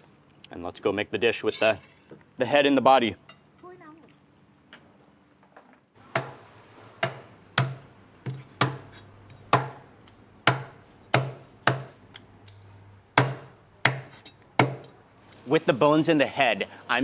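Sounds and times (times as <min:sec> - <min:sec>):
knife chopping fish on board: 0:07.0 - 0:08.9.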